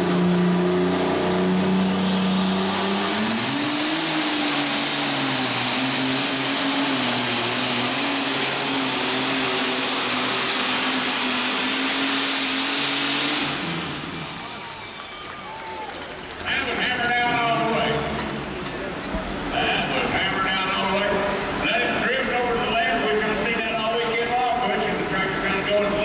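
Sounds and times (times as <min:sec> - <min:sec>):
high turbocharger whine: 0:00.0 - 0:15.4
tractor engine running hard: 0:00.0 - 0:15.4, 0:16.1 - 0:26.0.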